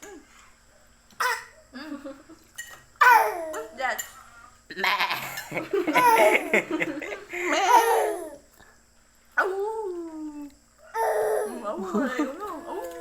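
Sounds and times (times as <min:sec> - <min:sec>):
laughter: 0:05.4 - 0:07.6.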